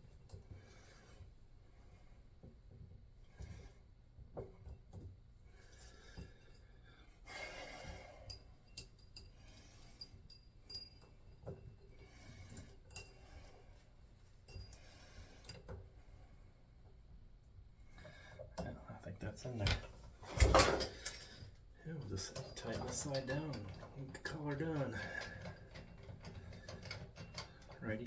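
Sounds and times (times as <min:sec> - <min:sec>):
metallic clinks of tools: 0:12.5 - 0:13.5, 0:19.7 - 0:27.8.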